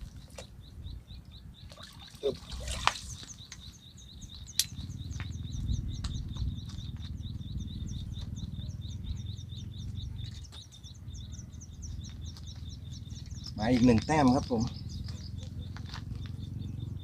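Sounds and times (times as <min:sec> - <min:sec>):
bird chirping: 0:00.0 - 0:17.0
low rumbling noise: 0:03.0 - 0:17.0
sharp click: 0:04.5 - 0:04.8.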